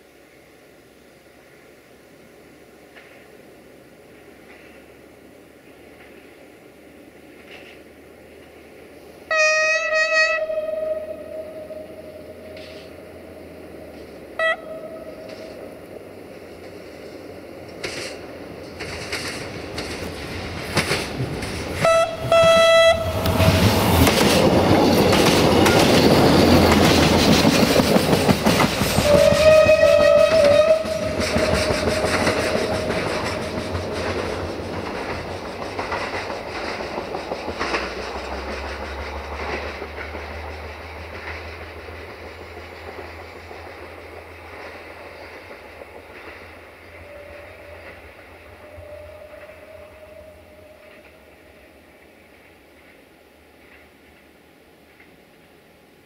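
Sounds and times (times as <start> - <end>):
train rumble: 0.0 - 56.0
train wheels clicking on rail joints: 2.8 - 3.4, 4.0 - 10.5, 11.7 - 55.5
train horn blasts: 9.3 - 12.9, 14.4 - 15.6, 21.8 - 24.0, 29.0 - 33.4, 47.0 - 51.2.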